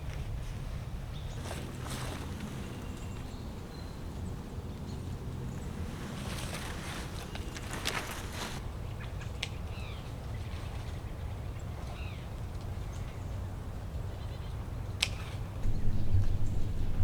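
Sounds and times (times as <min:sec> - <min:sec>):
low rumble: 0:15.6 - 0:17.0.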